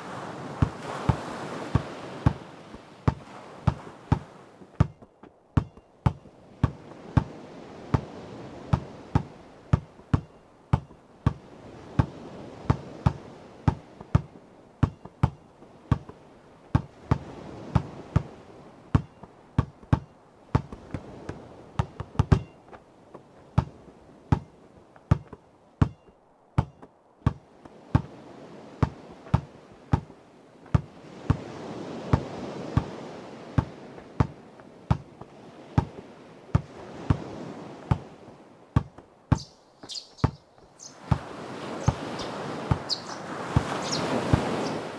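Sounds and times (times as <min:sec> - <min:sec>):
ocean waves washing: 0:00.0 - 0:25.8, 0:26.4 - 0:44.9
basketball bouncing on hard surface: 0:03.1 - 0:07.3, 0:08.7 - 0:11.4, 0:12.0 - 0:16.1, 0:18.9 - 0:22.6, 0:25.1 - 0:27.4, 0:33.6 - 0:35.1, 0:38.8 - 0:39.5.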